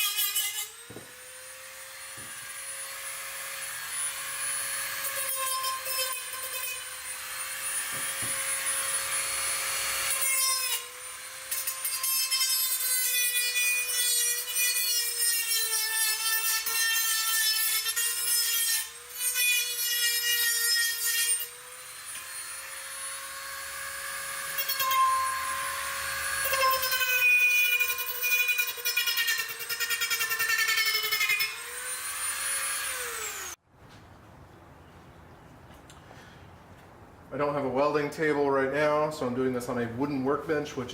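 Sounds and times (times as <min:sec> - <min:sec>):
angle grinder grinding steel: 0:00.0 - 0:33.6.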